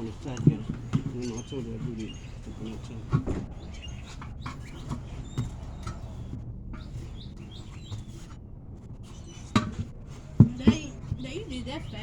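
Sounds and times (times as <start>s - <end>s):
knocks: 0.0s - 7.0s, 9.4s - 11.4s
low steady hum: 0.0s - 12.0s
faint bird chirps: 1.1s - 8.4s.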